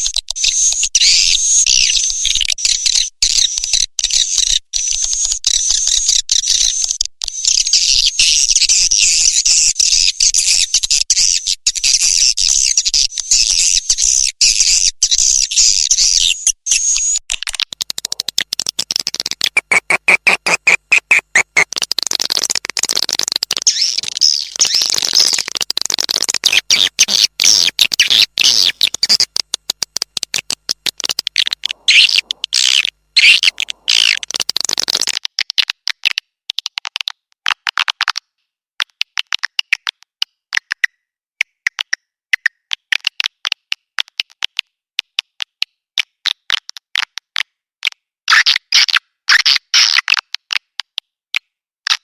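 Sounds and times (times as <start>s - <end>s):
rapid stuttering pulse: 17.8s - 23.5s
high-pitched twittering bird chirps: 23.7s - 25.4s, 31.9s - 34.2s.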